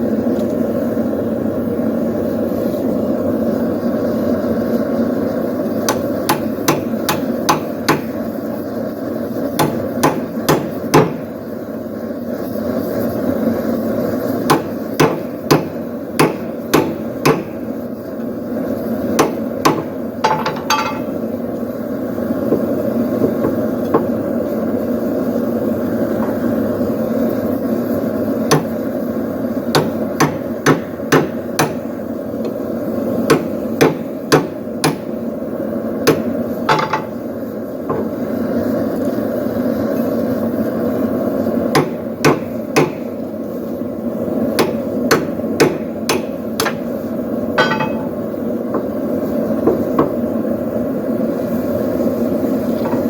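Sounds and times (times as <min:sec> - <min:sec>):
hammer striking hot steel: 0:05.4 - 0:11.4, 0:14.2 - 0:18.3, 0:19.0 - 0:21.3, 0:22.4 - 0:24.3, 0:28.4 - 0:32.6, 0:33.2 - 0:35.3, 0:36.0 - 0:37.2, 0:37.8 - 0:38.2, 0:41.6 - 0:43.3, 0:44.5 - 0:49.0, 0:49.6 - 0:50.2
metallic ring: 0:20.3 - 0:21.2, 0:47.6 - 0:48.2.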